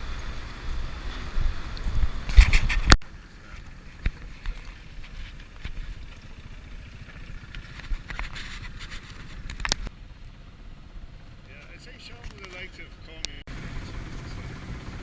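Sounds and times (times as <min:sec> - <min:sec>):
steady low rumble: 0:00.0 - 0:15.0
microphone handling rumbling and knocks: 0:01.4 - 0:03.0.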